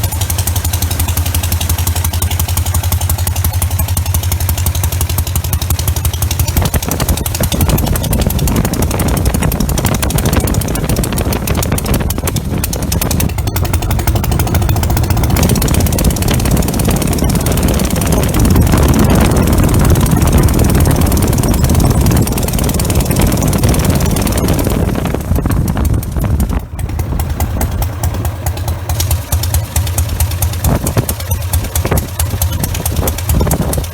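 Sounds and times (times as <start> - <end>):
stationary engine running: 0.0 - 33.9.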